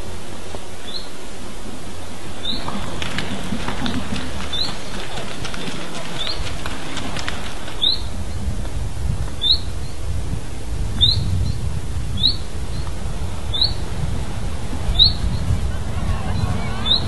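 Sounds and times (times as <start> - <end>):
steady low rumble: 0.0 - 17.0
small bird chirping: 7.8 - 8.1, 13.5 - 13.8.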